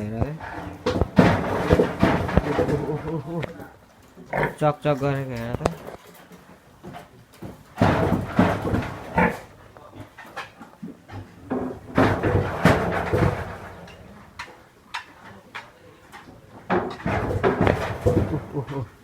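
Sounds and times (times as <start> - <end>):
pigs grunting: 0.0 - 4.8, 7.8 - 10.7, 17.0 - 19.0.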